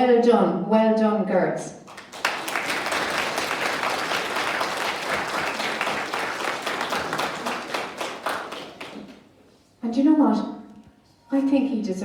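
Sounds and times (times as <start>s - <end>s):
audience applauding: 1.9s - 9.3s.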